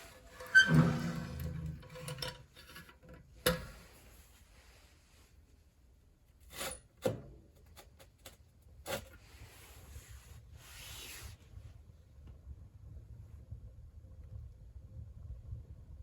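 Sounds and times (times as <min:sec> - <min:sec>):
soft scraping rustle: 0:03.7 - 0:05.8, 0:09.2 - 0:11.8.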